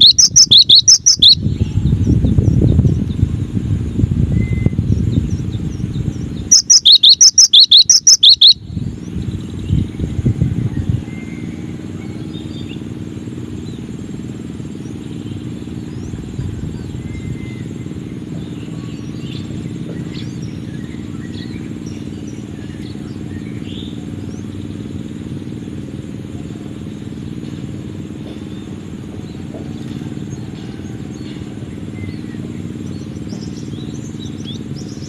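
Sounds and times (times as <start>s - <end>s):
bird chirps and whistles: 0.0s - 1.7s, 6.5s - 8.6s.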